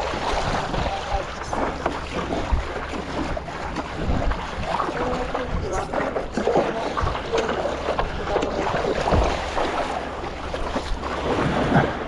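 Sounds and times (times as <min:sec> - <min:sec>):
water sloshing and splashing: 0:00.0 - 0:12.0
wind buffeting microphone: 0:00.0 - 0:12.0.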